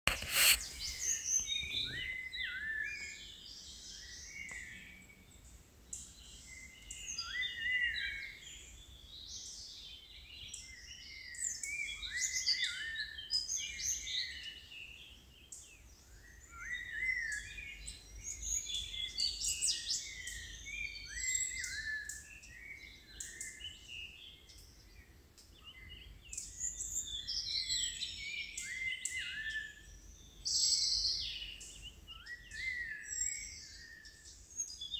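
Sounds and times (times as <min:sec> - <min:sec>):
birds chirping and whistling: 0:00.1 - 0:05.2, 0:10.5 - 0:14.6, 0:16.2 - 0:24.6, 0:25.6 - 0:34.9.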